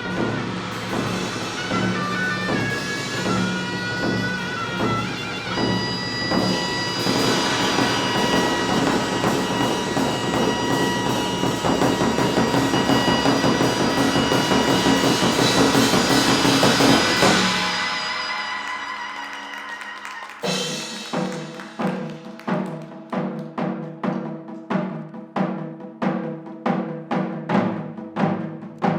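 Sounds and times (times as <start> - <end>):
reedy wind instrument: 0.0 - 22.4
fast drumming: 0.0 - 28.9.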